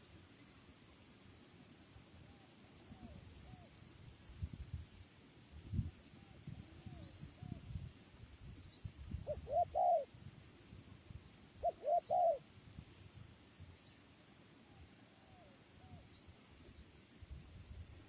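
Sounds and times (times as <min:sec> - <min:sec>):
dove cooing: 0:09.2 - 0:10.1, 0:11.6 - 0:12.4.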